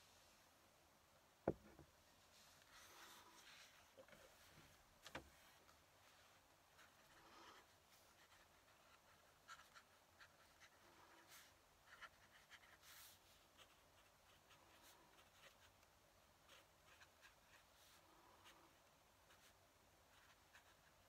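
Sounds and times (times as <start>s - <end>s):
pen nib scratching on paper: 6.8s - 21.0s.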